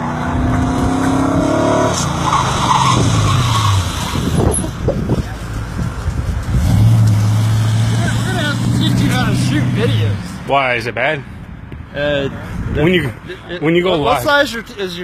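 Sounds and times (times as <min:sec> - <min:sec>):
car engine revving high: 0:00.0 - 0:04.3, 0:06.6 - 0:10.4
tires skidding: 0:00.0 - 0:10.7.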